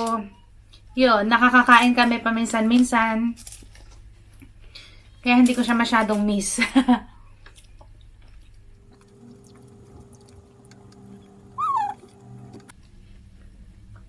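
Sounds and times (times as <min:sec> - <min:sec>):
chewing clicks: 0:07.4 - 0:12.7
low steady hum: 0:08.7 - 0:12.7.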